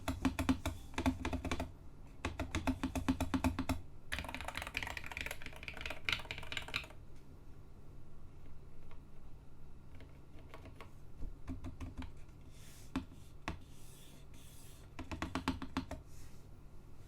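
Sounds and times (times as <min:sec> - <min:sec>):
mechanical keyboard typing: 0:02.3 - 0:07.0.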